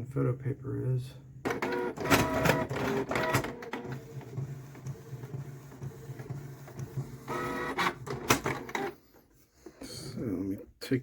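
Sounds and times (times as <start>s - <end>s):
printer mechanical running: 1.5s - 9.0s
printer motor whine and clicks: 1.5s - 9.0s.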